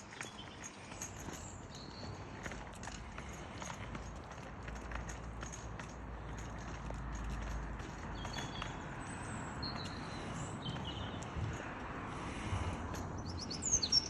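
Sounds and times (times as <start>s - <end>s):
faint high bird chirps: 13.2s - 14.0s.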